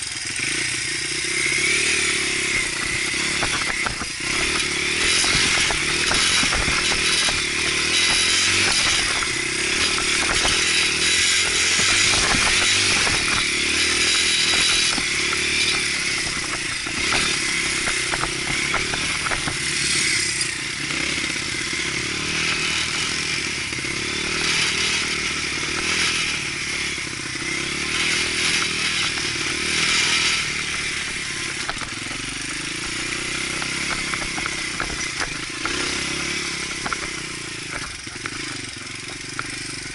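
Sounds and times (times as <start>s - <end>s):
dirt bike engine: 0.0s - 39.9s
scattered clattering: 2.4s - 20.6s, 28.0s - 39.4s.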